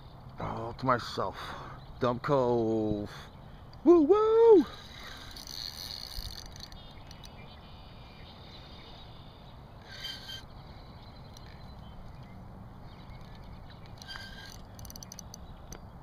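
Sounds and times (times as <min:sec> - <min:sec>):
short bird calls: 0:03.2 - 0:12.0, 0:13.0 - 0:15.5
faint clicks: 0:05.1 - 0:07.4, 0:11.3 - 0:12.3, 0:13.0 - 0:15.8.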